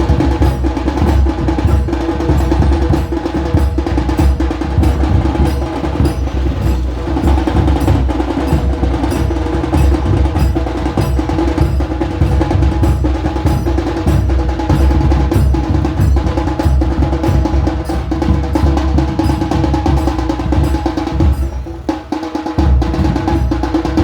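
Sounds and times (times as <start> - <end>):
dhol drumming: 0.0 - 24.0.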